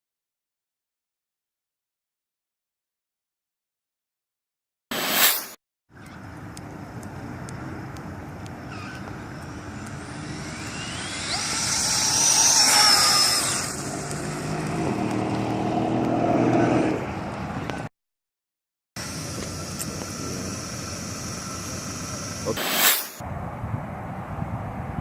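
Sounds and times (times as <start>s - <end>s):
radio-controlled car motor whine: 8.7s - 14.5s, 19.0s - 23.2s.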